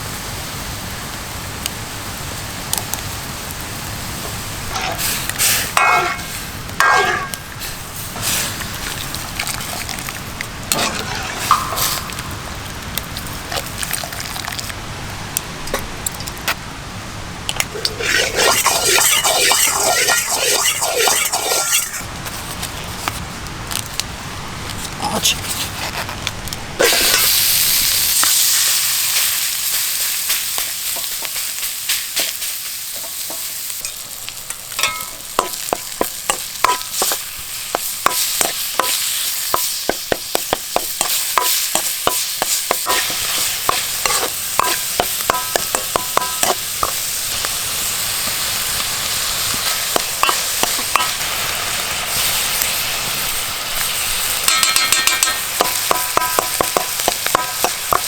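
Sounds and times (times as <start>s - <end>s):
food sizzling in a pan: 0.0s - 14.7s, 17.6s - 22.1s, 26.8s - 58.0s
utensil tapping and scraping pan: 5.8s - 7.4s, 10.7s - 12.2s, 17.8s - 22.0s, 33.0s - 47.0s, 49.9s - 51.2s, 54.5s - 58.0s.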